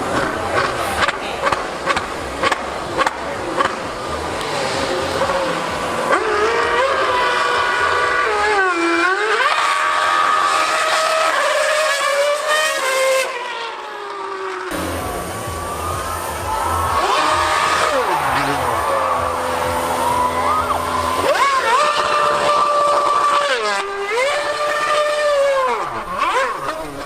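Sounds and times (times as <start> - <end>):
racing engine revving: 0.0 - 27.0.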